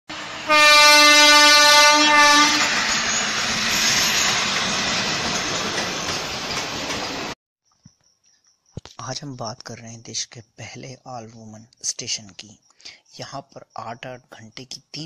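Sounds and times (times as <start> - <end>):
train rushing past: 0.1 - 7.4
train horn blast: 0.2 - 2.8.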